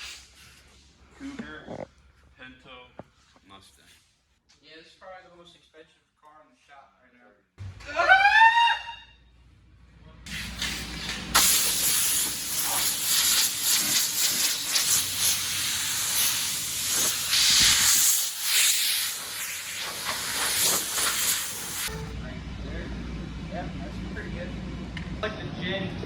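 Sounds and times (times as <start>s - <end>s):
loud steady hiss: 10.3s - 22.1s.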